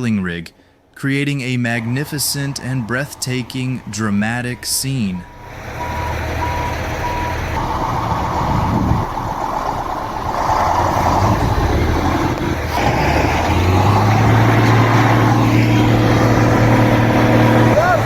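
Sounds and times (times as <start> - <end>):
heavy truck engine running: 1.8 - 18.0
reversing beeper: 2.1 - 9.2.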